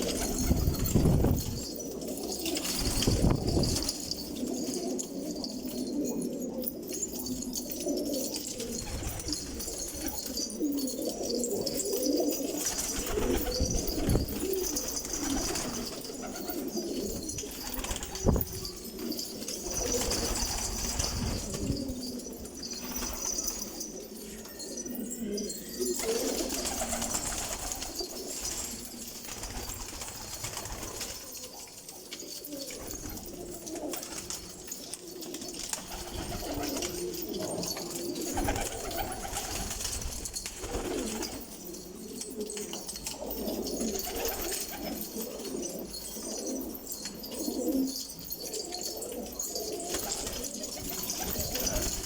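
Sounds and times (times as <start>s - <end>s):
pigeons cooing: 0.0s - 52.0s.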